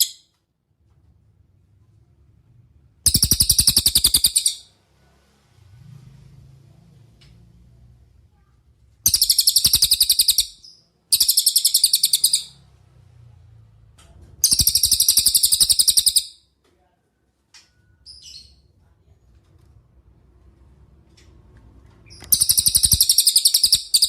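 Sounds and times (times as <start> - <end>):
songbird high-pitched trills: 3.1 - 4.7, 9.1 - 12.6, 14.4 - 16.4, 22.2 - 24.0.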